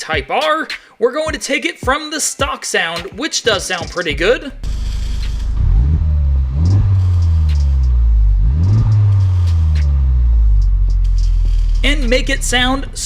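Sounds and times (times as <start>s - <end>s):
car engine revving: 4.2s - 13.0s.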